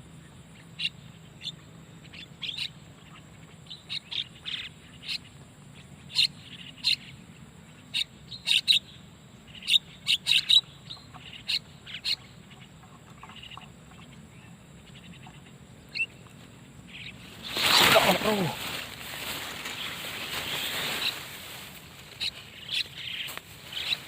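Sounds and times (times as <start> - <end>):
starling calls: 16.8 - 24.0.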